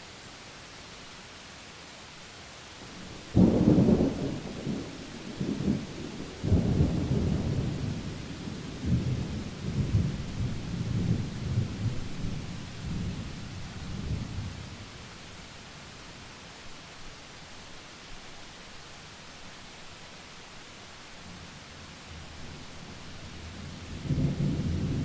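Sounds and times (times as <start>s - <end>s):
rain hiss: 0.0s - 25.0s
thunder clap and rumble: 23.9s - 25.0s.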